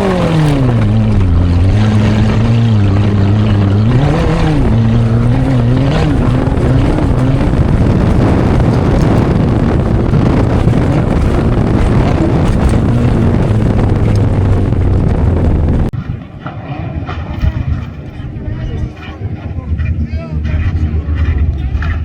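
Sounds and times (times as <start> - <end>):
car engine revving hard: 0.0 - 16.0
wind on microphone: 0.0 - 16.3, 16.9 - 19.2.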